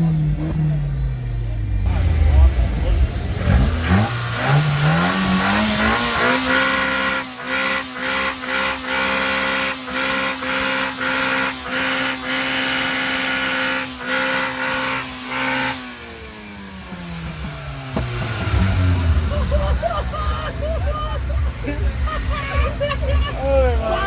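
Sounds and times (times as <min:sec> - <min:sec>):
car engine at rev limiter: 0:00.0 - 0:24.0
exhaust pops: 0:17.2 - 0:23.3.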